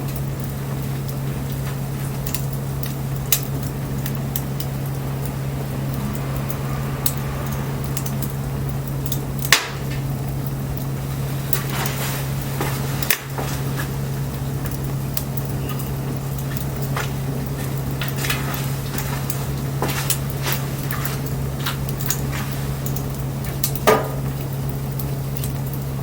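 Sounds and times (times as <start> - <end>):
steady low hum: 0.0 - 26.0
wood fire crackling and popping: 0.0 - 26.0.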